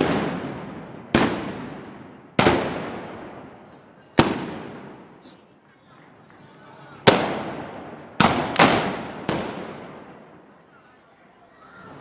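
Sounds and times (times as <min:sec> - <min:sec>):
gunpowder blasts echoing: 0:00.0 - 0:03.5, 0:07.1 - 0:10.2.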